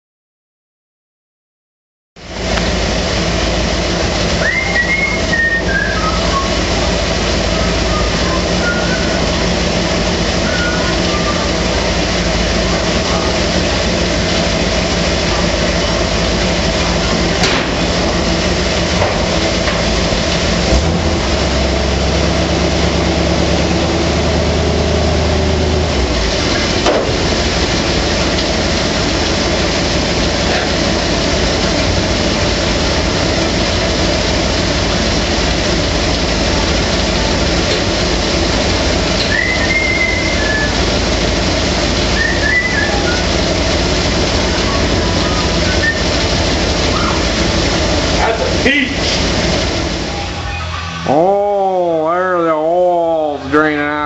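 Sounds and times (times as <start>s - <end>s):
engine running: 2.2s - 54.0s.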